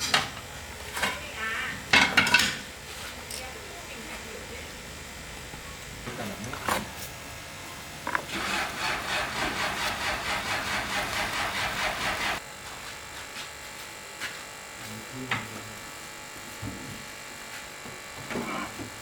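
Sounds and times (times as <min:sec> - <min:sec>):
hand tool scraping: 0:08.1 - 0:12.4.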